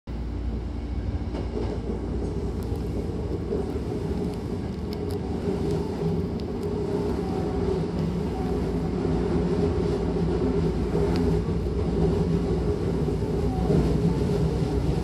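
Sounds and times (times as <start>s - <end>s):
train wheels rumbling: 0.1s - 15.0s.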